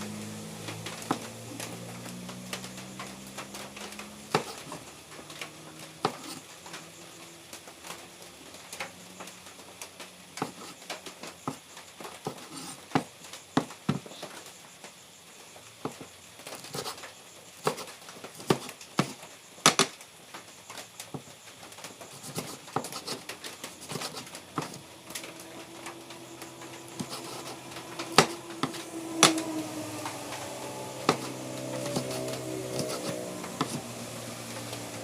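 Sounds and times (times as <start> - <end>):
knife chopping on cutting board: 4.3 - 4.7, 6.0 - 6.4, 17.7 - 19.1, 28.1 - 29.4, 31.1 - 32.2, 32.8 - 33.8
steady tones: 23.0 - 35.0.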